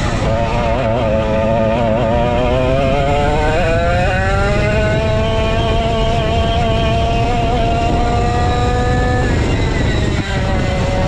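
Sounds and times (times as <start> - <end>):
go-kart engine running hard: 0.0 - 11.0.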